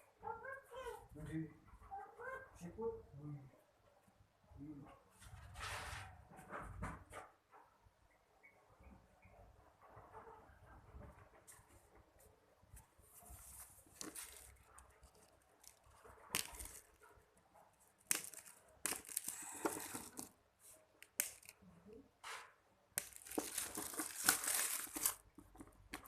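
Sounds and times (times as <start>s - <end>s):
packaging crinkling and tearing: 13.9s - 17.0s, 18.0s - 20.4s, 21.0s - 21.6s, 23.0s - 26.0s.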